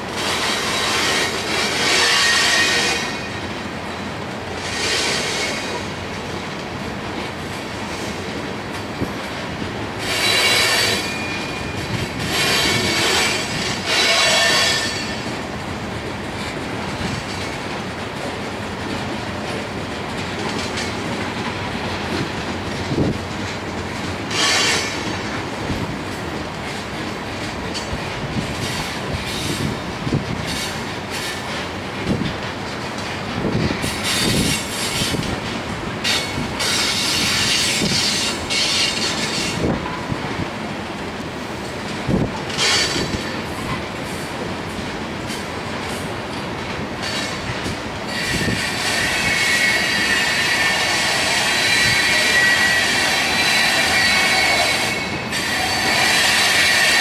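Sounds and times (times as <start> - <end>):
steel wheels rolling on rail: 0.0 - 57.0
high-pitched wheel squeal: 10.0 - 15.2, 48.1 - 57.0.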